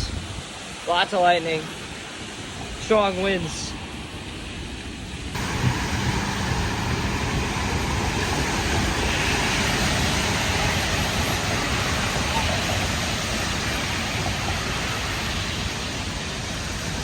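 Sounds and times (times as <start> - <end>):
wind buffeting microphone: 0.0 - 0.8, 1.9 - 17.0
heavy rain: 5.3 - 17.0.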